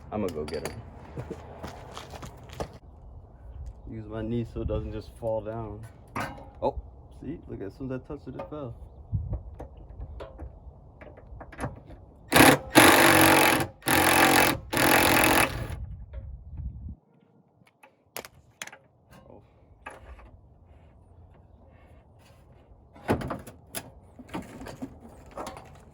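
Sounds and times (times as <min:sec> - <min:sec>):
impact wrench bursts: 0:12.3 - 0:15.8.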